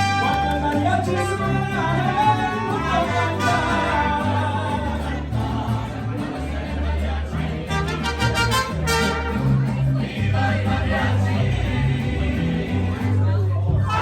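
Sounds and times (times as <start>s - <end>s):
low bass line: 0.0s - 14.0s
strummed guitars: 0.0s - 14.0s.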